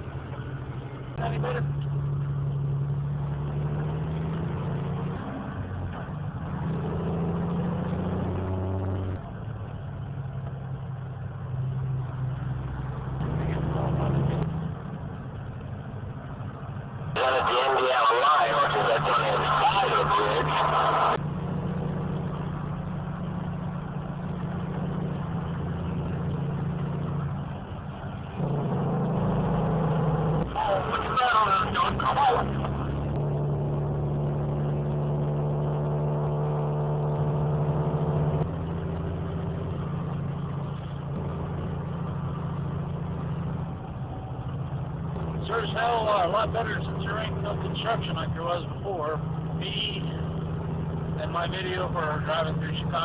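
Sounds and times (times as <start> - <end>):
diesel truck engine droning: 0.0 - 53.0
road noise: 0.0 - 53.0.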